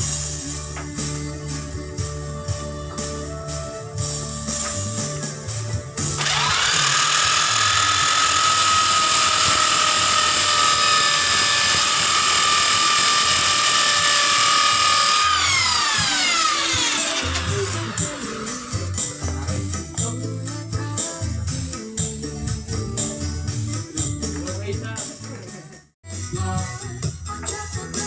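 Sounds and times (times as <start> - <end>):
background music: 0.0 - 11.6, 13.1 - 28.0
electric power tool whining: 0.0 - 19.7.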